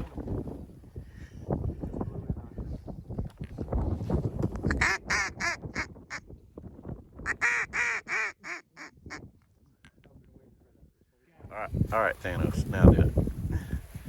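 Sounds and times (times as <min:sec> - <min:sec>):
low wind rumble: 0:00.0 - 0:14.0
duck quacking: 0:04.7 - 0:05.9, 0:07.3 - 0:09.2.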